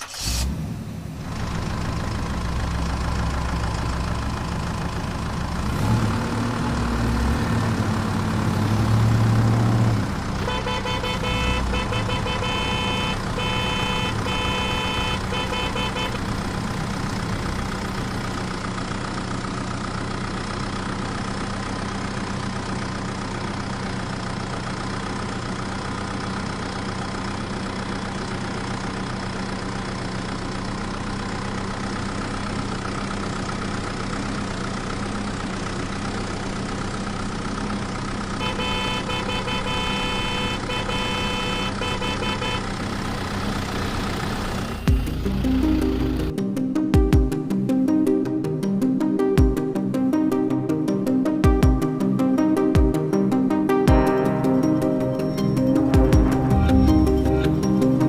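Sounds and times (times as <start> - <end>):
engine idling: 0.0 - 46.4, 54.3 - 58.0
pulsing high beeping: 54.2 - 58.0.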